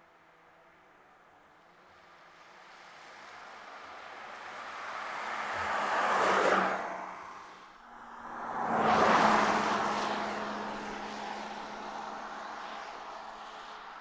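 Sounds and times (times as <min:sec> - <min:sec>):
car driving past: 0:04.5 - 0:13.9.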